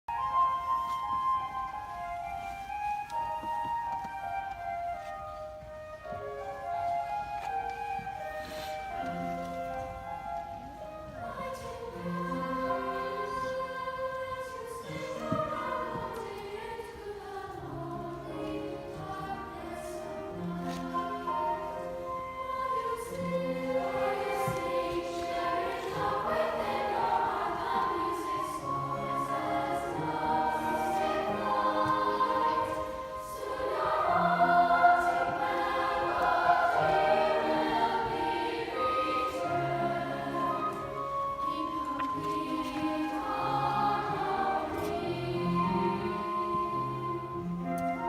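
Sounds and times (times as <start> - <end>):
youth choir singing chords: 6.5 - 48.0.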